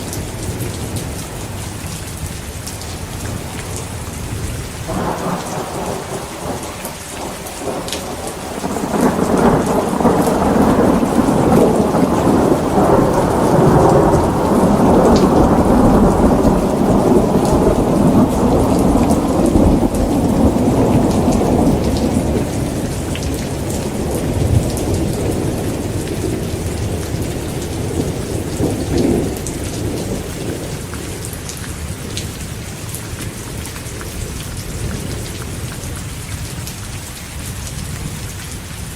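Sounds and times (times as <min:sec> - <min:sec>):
heavy rain: 0:00.0 - 0:38.9
thunder rolling: 0:03.3 - 0:30.8.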